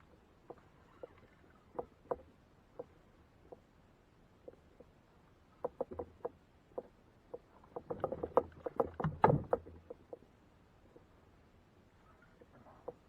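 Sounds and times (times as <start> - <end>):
knocks and taps on kayak: 5.6 - 10.2.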